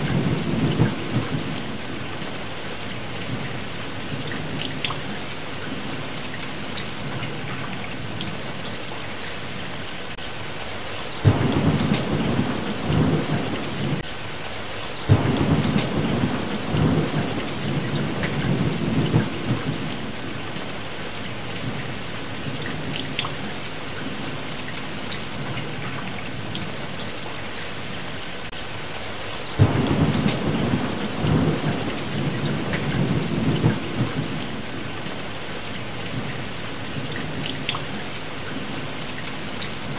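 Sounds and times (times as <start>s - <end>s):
heavy rain: 0.0s - 39.9s
thunder rolling: 29.6s - 34.4s.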